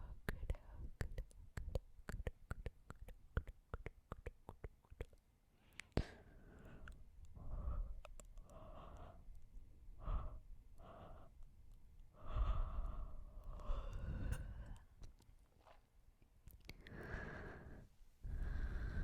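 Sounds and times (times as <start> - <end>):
breath rumbling on microphone: 12.2 - 14.9, 16.9 - 19.0
breathy sighs and exhales: 12.2 - 14.9, 16.8 - 19.0.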